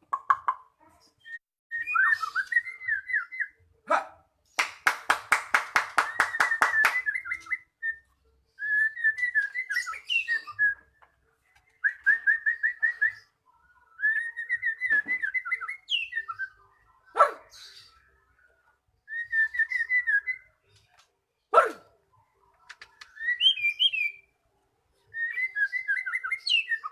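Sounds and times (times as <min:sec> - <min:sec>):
bird singing whistled notes: 0:01.2 - 0:03.6, 0:06.0 - 0:10.9, 0:14.0 - 0:16.7, 0:19.0 - 0:20.7, 0:23.0 - 0:24.3, 0:25.1 - 0:26.9.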